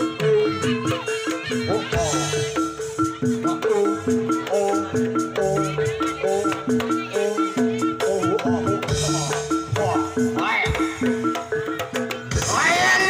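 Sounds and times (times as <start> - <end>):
gamelan gong-chime percussion: 0.0 - 13.0
wavering melody line: 0.0 - 13.0.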